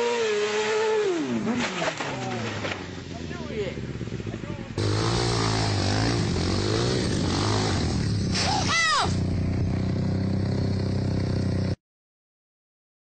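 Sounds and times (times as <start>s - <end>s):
motorcycle engine running: 2.8s - 11.8s
short high rising cry: 8.4s - 9.2s.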